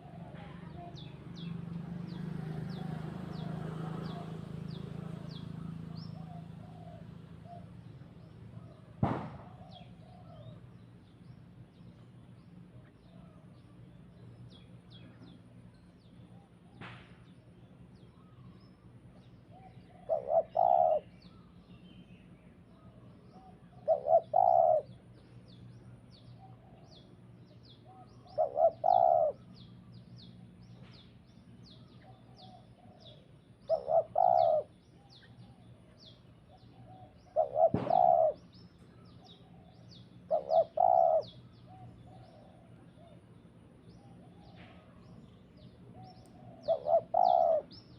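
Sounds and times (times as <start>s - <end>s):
dove cooing: 0.0s - 0.9s, 2.4s - 10.7s, 19.5s - 21.4s, 23.3s - 25.2s, 27.8s - 29.7s, 31.8s - 43.3s, 44.0s - 47.9s
small birds chirping: 0.0s - 47.9s.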